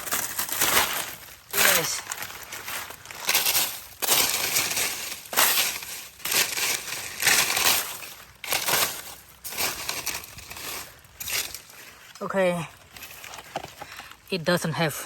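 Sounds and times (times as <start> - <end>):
dry leaves crunching: 0.0 - 14.6.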